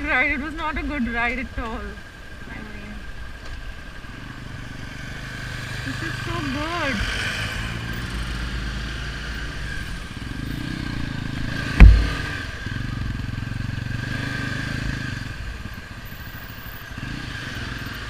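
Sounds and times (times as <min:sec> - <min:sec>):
motorcycle engine running: 0:00.0 - 0:18.0
wind and road noise: 0:00.0 - 0:18.0
sharp thump: 0:11.6 - 0:12.6.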